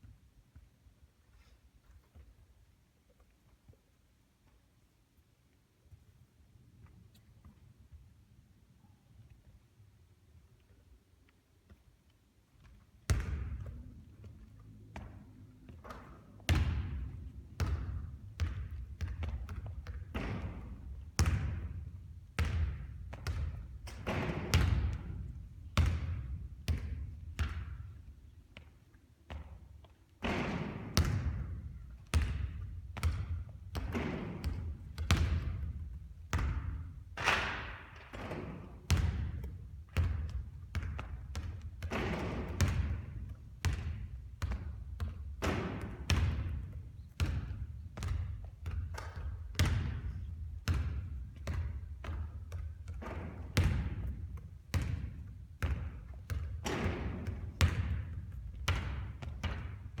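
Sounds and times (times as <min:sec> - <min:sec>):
basketball bouncing on a court: 0:12.6 - 1:00.0.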